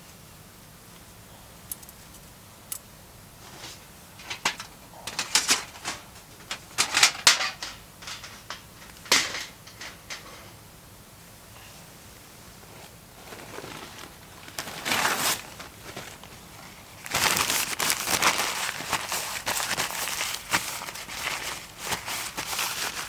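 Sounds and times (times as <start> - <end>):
objects clicking and clacking: 4.2 - 10.5.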